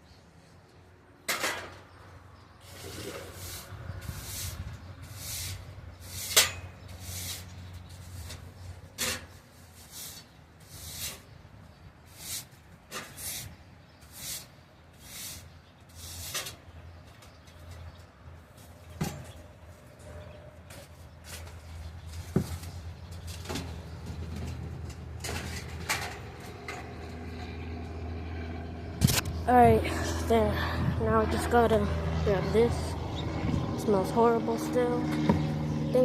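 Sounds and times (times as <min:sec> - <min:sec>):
broom sweeping: 0:02.6 - 0:06.4.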